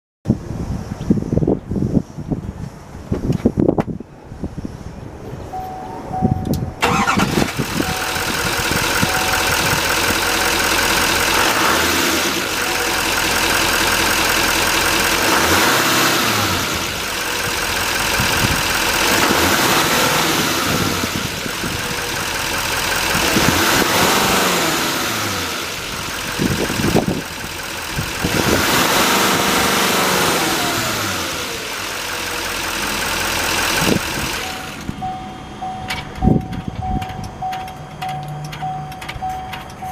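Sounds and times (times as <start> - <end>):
pickup engine idling and revving: 5.5 - 39.9
engine cranking and starting: 6.8 - 35.1.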